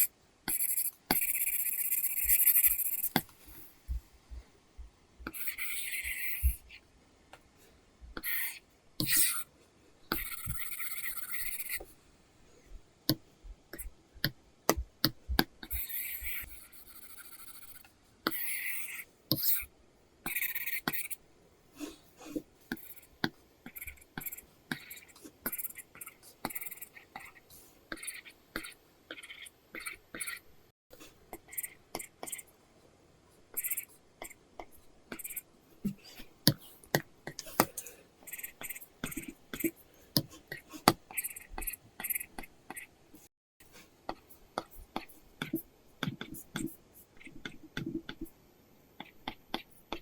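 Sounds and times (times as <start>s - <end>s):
stylus scratching on a screen: 0.0s - 3.3s, 5.2s - 6.8s, 8.2s - 9.5s, 10.1s - 11.9s, 14.8s - 21.2s, 22.7s - 32.5s, 33.5s - 36.7s, 37.3s - 43.3s, 44.1s - 48.3s, 49.0s - 50.0s
stylus tapping on a screen: 13.8s - 15.8s.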